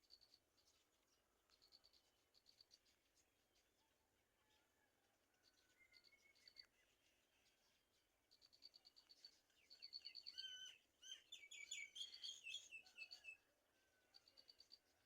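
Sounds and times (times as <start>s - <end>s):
whistled bird calls: 9.8s - 13.4s.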